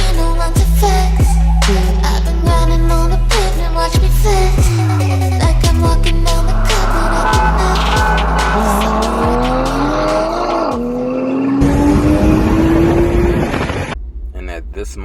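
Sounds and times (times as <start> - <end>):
background music with steady beat: 0.0 - 11.2
car engine accelerating hard: 0.1 - 15.0
dense rush of noise: 5.8 - 10.0.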